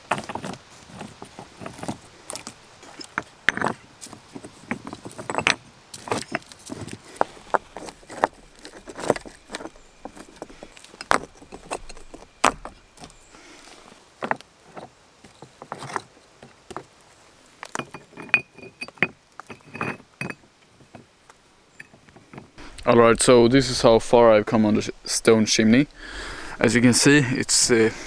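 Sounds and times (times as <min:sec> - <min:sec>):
stones knocking together: 0:00.0 - 0:17.0.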